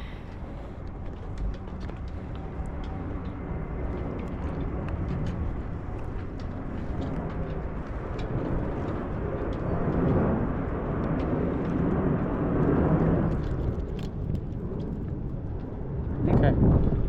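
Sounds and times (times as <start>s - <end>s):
jet aircraft roar overhead: 0.0s - 17.0s.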